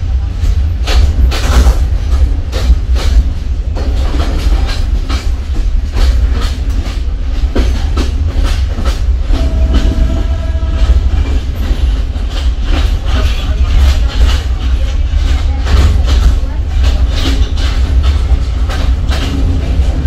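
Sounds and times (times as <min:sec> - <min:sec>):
train rumbling: 0:00.0 - 0:20.0
wheels clanking on rails: 0:00.0 - 0:20.0
steady higher tone: 0:09.3 - 0:11.4.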